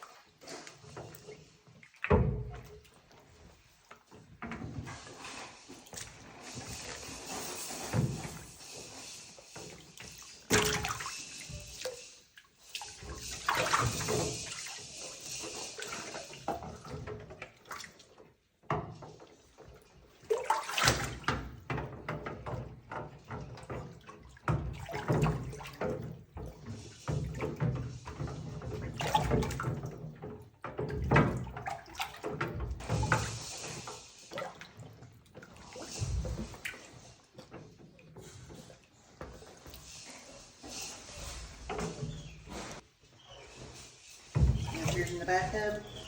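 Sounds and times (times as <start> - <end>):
water splashing in bathtub: 0.0 - 46.0
knocks against tub: 10.5 - 11.1, 44.3 - 46.0.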